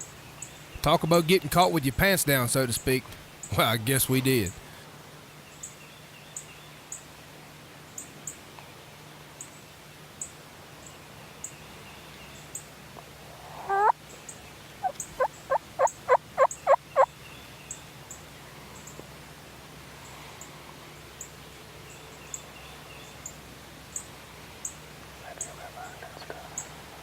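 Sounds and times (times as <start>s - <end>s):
turkey calling: 13.2s - 14.0s, 14.8s - 17.1s
turkey yelping: 13.3s - 14.0s, 14.8s - 17.1s.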